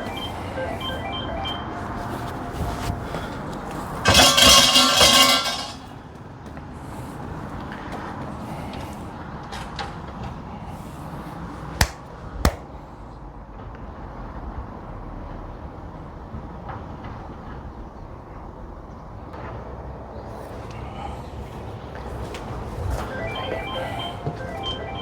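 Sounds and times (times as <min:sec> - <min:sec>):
shrine bell jangling: 0:04.0 - 0:05.9
hand claps: 0:11.8 - 0:12.7.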